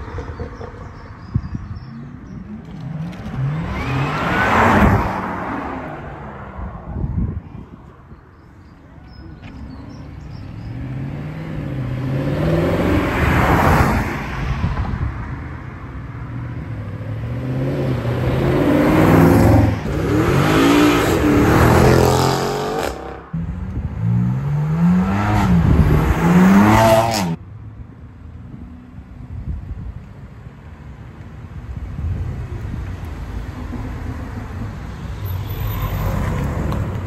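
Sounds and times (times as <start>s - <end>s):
car engine accelerating hard: 2.7s - 5.7s.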